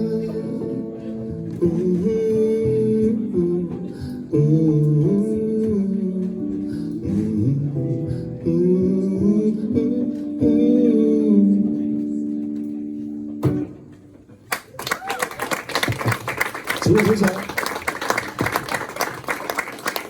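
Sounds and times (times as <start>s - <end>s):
guitar chords: 0.0s - 14.3s.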